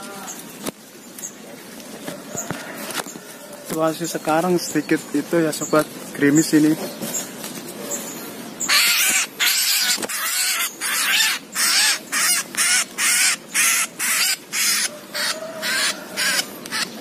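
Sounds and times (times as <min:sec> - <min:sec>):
bird screeching distress calls: 0:08.0 - 0:17.0.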